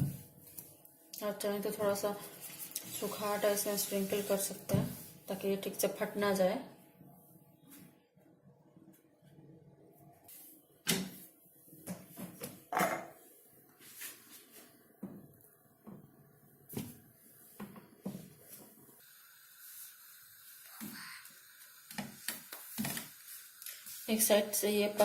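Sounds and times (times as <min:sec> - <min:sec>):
steady hiss: 0:16.8 - 0:25.0.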